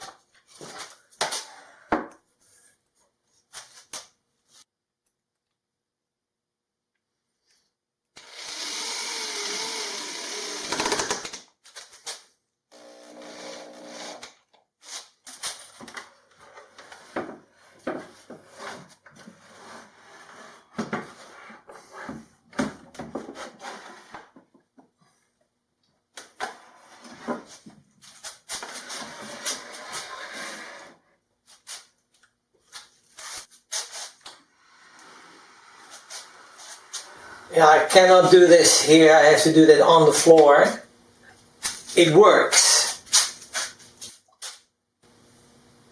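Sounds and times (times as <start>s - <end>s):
small power tool running: 8.2s - 11.4s.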